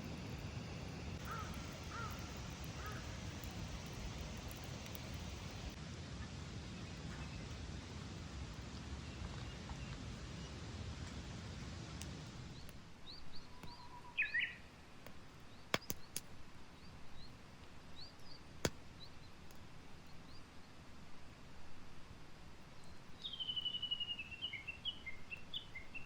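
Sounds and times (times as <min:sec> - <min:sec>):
campfire snapping: 0:00.0 - 0:05.8, 0:11.0 - 0:13.8, 0:15.0 - 0:16.4
small birds chirping: 0:00.0 - 0:05.8, 0:12.4 - 0:14.7, 0:15.4 - 0:20.8, 0:22.8 - 0:26.0.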